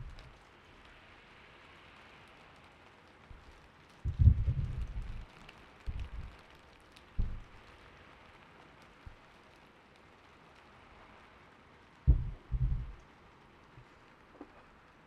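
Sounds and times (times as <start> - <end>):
gentle rain hiss: 0.0 - 15.0.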